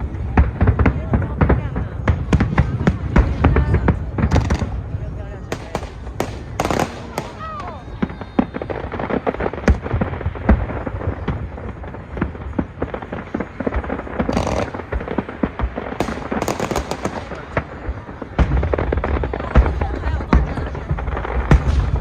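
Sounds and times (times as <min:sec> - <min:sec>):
fireworks crackling: 0:00.0 - 0:22.0
firework shell bursts and bangs: 0:05.5 - 0:07.7, 0:13.9 - 0:19.0.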